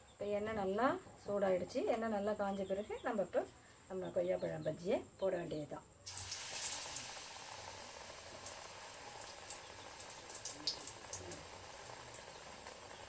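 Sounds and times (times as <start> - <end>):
food deep-frying in oil: 6.0 - 13.0.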